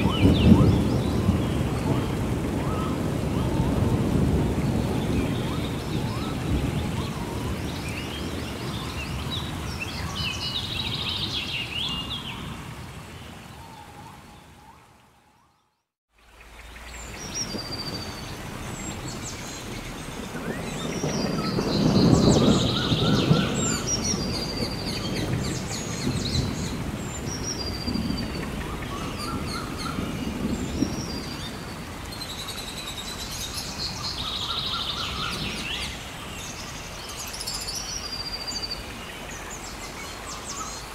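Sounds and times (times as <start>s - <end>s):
thunder rumbling: 0.0s - 10.2s, 17.2s - 32.1s
rain: 0.0s - 40.9s.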